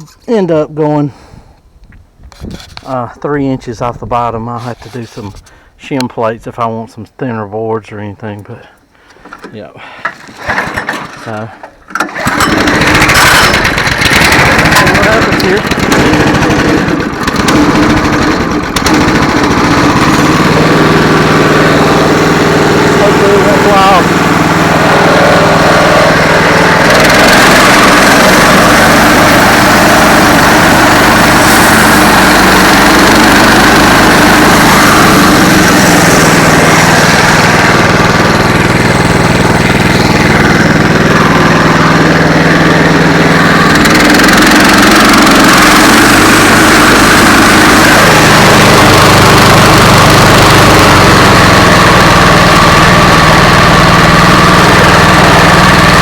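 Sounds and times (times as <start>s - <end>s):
gasoline engine running under load: 8.2s - 56.0s
band saw blade cutting log: 12.0s - 51.7s.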